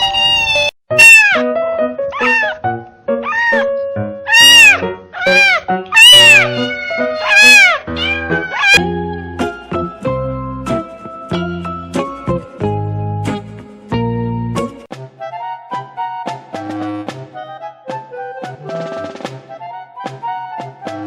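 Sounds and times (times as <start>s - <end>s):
cat meowing: 0.0s - 1.4s, 2.1s - 2.6s, 3.2s - 3.7s, 4.3s - 8.9s
background music: 0.9s - 21.0s.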